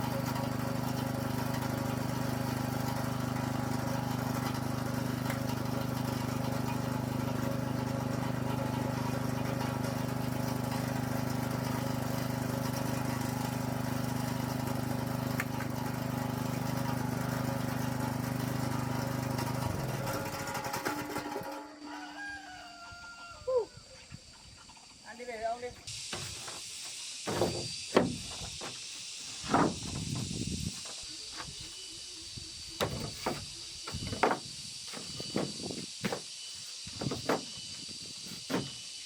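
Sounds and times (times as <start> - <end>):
small engine running: 0.0 - 21.8.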